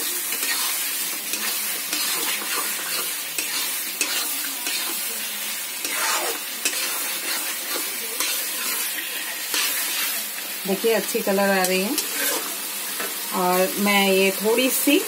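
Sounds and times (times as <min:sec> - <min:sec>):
chicken sizzling in pan: 0:00.0 - 0:15.0
steel spatula scraping pan: 0:00.3 - 0:05.1, 0:05.8 - 0:10.2, 0:11.6 - 0:12.6.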